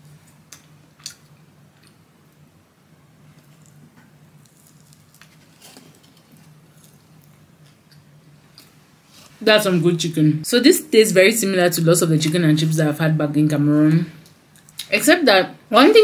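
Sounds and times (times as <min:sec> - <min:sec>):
low steady hum: 0:00.0 - 0:16.0
person chewing food: 0:00.3 - 0:02.4, 0:03.3 - 0:09.3.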